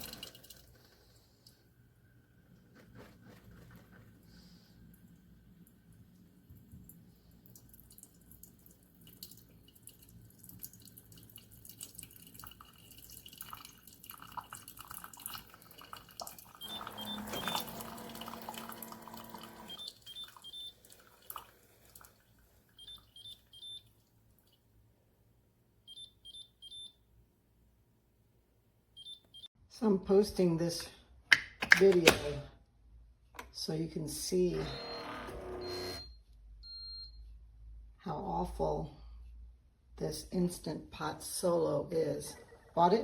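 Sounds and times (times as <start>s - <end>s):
pump humming: 16.6s - 20.7s
short beeps: 34.6s - 37.3s.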